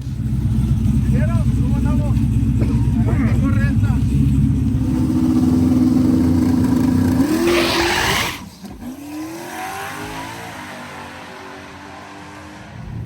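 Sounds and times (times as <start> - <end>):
truck engine revving and launching: 4.7 - 13.0.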